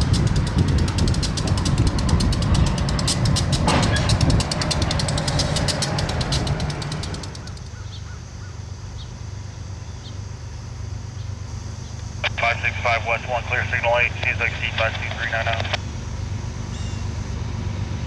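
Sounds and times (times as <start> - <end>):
wheels clicking over rails: 0.0 - 7.8
train rumbling past: 0.0 - 14.4, 15.4 - 18.0.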